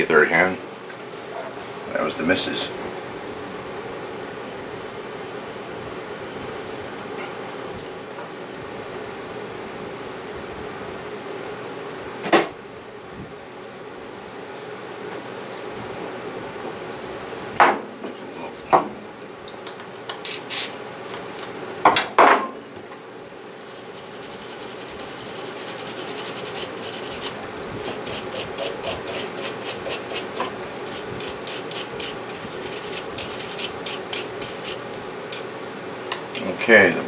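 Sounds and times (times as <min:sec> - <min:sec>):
bristle brush scrubbing metal: 0:23.6 - 0:34.8.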